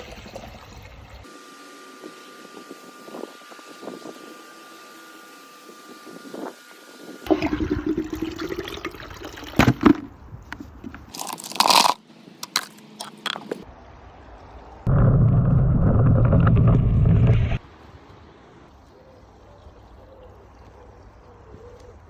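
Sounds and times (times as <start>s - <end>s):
crunching and scraping: 9.6s - 13.7s.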